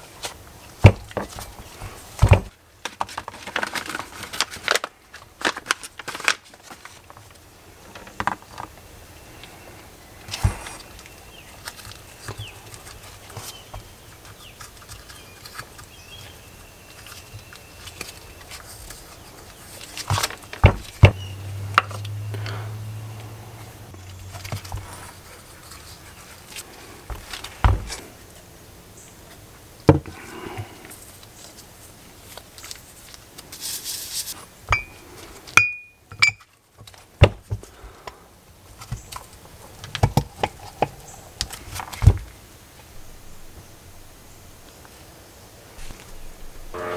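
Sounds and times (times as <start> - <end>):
brake parts clicking and knocking: 19.9 - 22.4.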